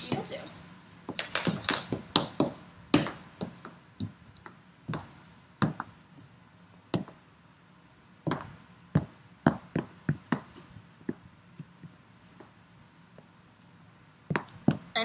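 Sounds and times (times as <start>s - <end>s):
hard objects knocking and clicking: 0.0s - 5.0s.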